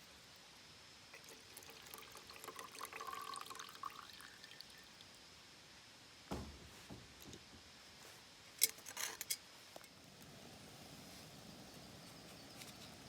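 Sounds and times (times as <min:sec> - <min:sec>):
faint background noise: 0:00.0 - 0:13.0
dull thump: 0:06.3 - 0:07.7.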